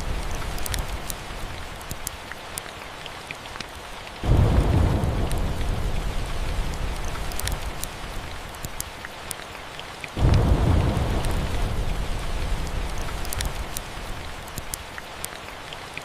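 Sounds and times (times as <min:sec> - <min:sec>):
steady rain: 0:00.0 - 0:16.0
small sharp crackles: 0:00.4 - 0:03.8, 0:06.7 - 0:09.4, 0:12.6 - 0:15.4
thunder rumbling: 0:04.2 - 0:08.6, 0:10.2 - 0:14.6.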